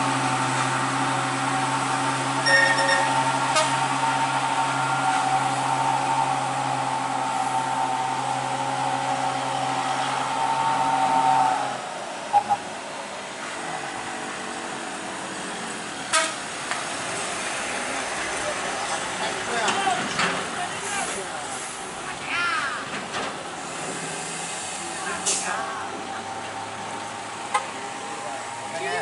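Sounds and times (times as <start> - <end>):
truck engine running: 0.0 - 22.2.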